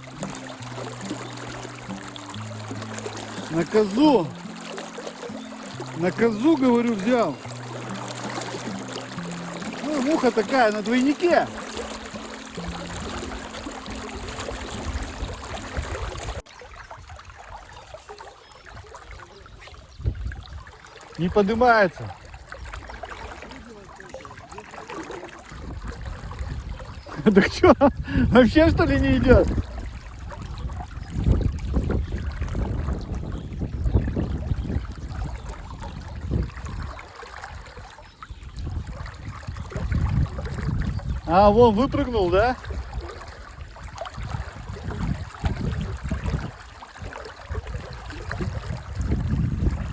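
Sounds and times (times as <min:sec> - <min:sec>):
river water rushing: 0:00.0 - 0:19.3, 0:20.7 - 0:26.1, 0:36.4 - 0:38.2, 0:39.1 - 0:49.1
wind on microphone: 0:12.6 - 0:17.9, 0:18.7 - 0:21.3, 0:25.5 - 0:49.9.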